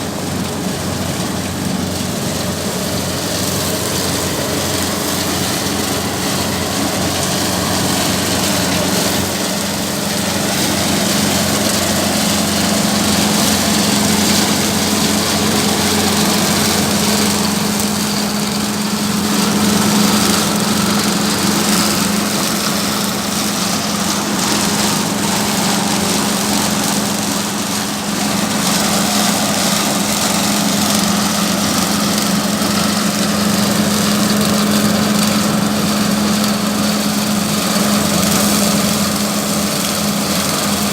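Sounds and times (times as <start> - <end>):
machine engine humming and whirring: 0.0 - 40.9.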